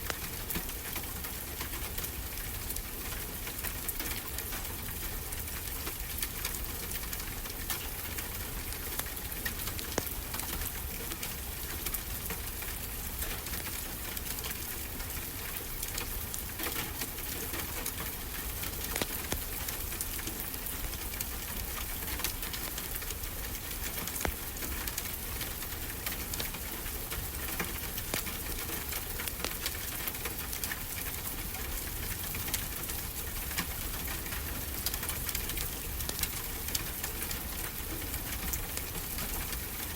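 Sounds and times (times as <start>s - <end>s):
wood fire crackling: 5.6s - 39.9s.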